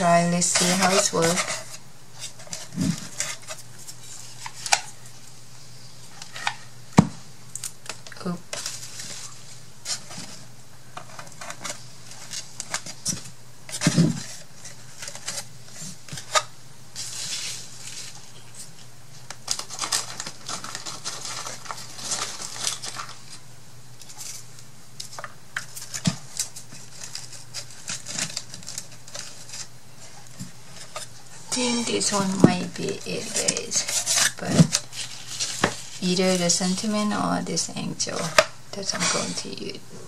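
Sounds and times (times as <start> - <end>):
paper rustling and sliding: 7.8 - 23.4, 24.1 - 36.5.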